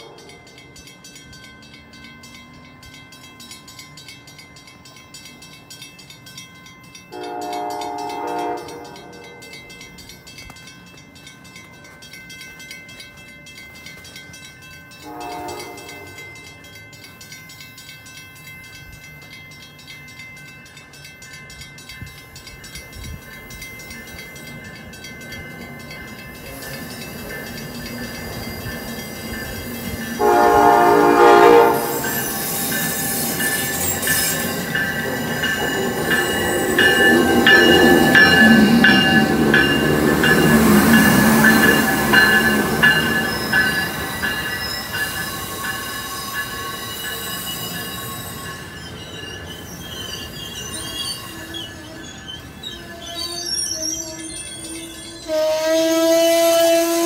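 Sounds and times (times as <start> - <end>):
train running past: 0.0 - 57.0
train horn blast: 7.1 - 9.3, 15.0 - 16.2, 30.2 - 32.0, 55.1 - 57.0.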